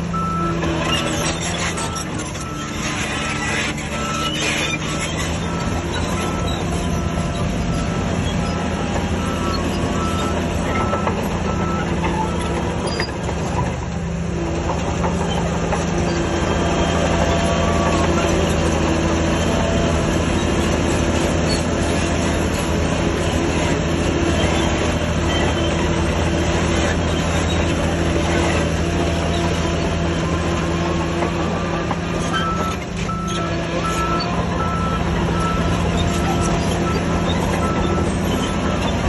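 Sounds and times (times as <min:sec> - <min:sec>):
bulldozer diesel engine under load: 0:00.0 - 0:39.0
reversing alarm beeping: 0:00.1 - 0:13.1, 0:31.4 - 0:39.0.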